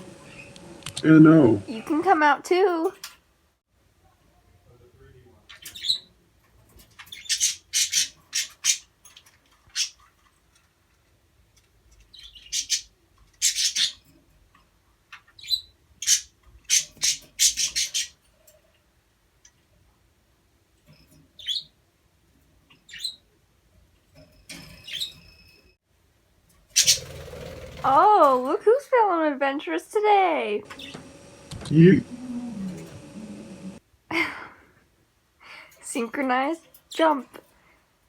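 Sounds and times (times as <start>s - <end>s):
budgerigars chirping and squawking: 5.5s - 6.1s, 7.0s - 8.9s, 9.7s - 10.0s, 12.2s - 14.0s, 15.4s - 18.2s, 26.8s - 28.0s, 30.7s - 33.8s.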